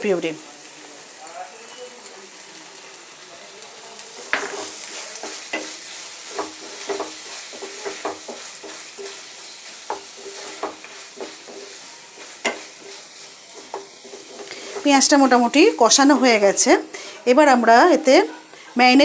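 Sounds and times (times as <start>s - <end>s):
paste sizzling in oil: 0.0s - 19.0s
spatula scraping a pan: 4.2s - 16.7s
spatula clinking on pan: 9.9s - 13.0s.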